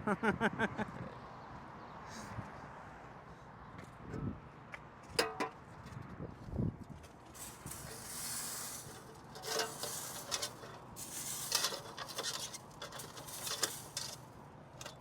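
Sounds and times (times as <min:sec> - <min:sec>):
litter scratching and rustling: 0:07.4 - 0:15.0.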